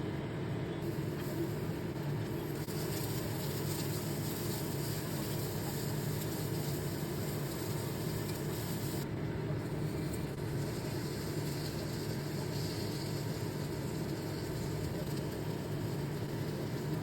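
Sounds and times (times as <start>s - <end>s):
motor or fan humming: 0.0s - 17.0s.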